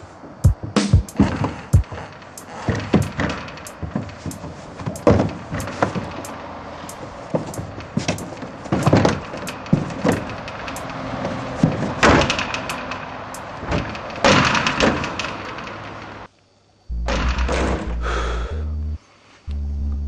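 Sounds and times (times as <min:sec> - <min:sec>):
knocks and bumps in plastic bin: 0:00.4 - 0:06.3, 0:07.3 - 0:10.5.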